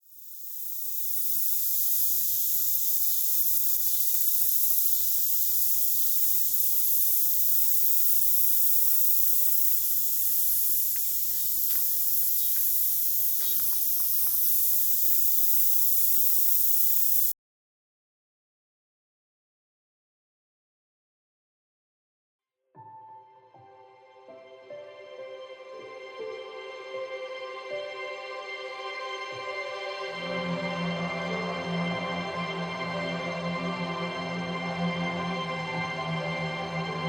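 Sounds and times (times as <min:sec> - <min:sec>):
high-pitched hiss: 0:00.0 - 0:17.4, 0:26.1 - 0:37.0.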